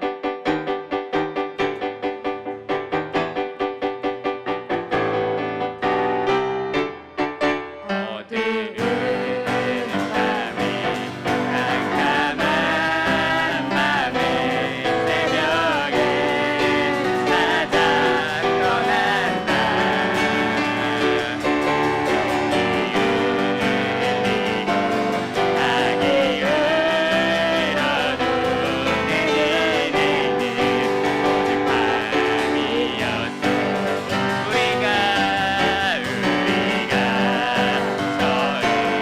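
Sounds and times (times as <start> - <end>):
piano and band accompaniment: 0.0 - 39.0
person singing: 7.8 - 39.0.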